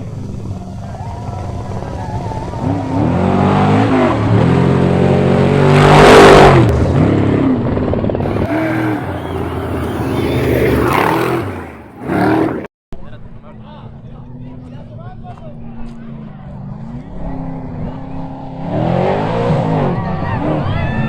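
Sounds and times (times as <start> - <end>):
race truck engine revving: 2.4 - 7.6, 8.2 - 12.7.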